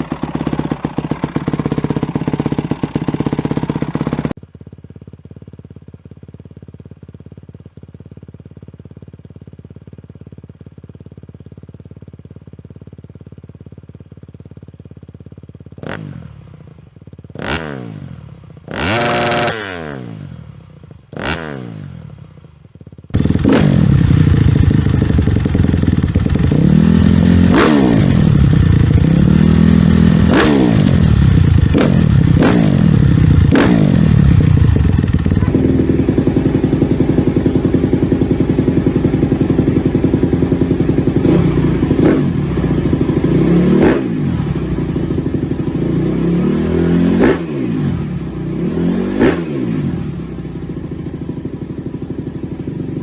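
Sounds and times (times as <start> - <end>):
motorcycle engine idling: 0.0 - 53.0
motorcycle engine revving: 0.0 - 53.0.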